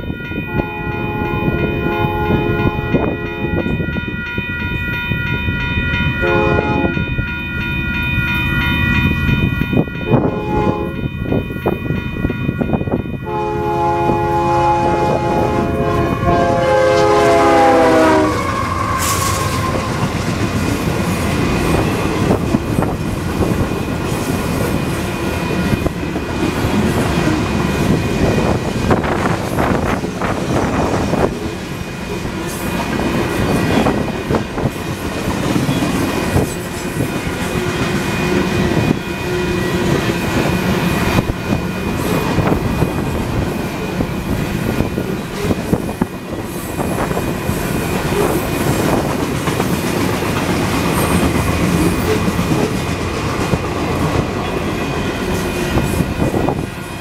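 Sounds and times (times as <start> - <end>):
train air horn chord: 0.5 - 3.7, 6.2 - 7.0, 10.1 - 11.0, 13.2 - 20.0
train wheels clattering on rails: 18.6 - 57.0.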